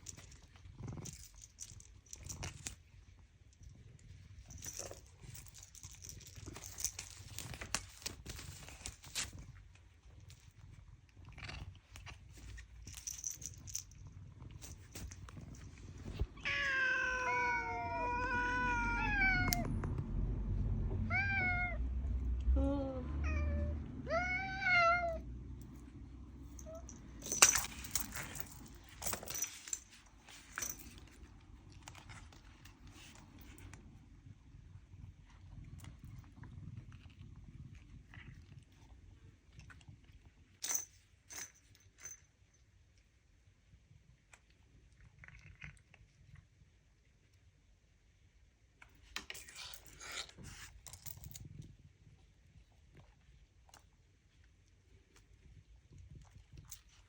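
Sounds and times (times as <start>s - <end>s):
low steady rumble: 0.0s - 45.2s
cat meowing: 16.4s - 19.7s, 21.0s - 21.8s, 23.2s - 25.2s
low rumble: 17.4s - 28.8s
cat crunching dry food: 45.0s - 46.5s.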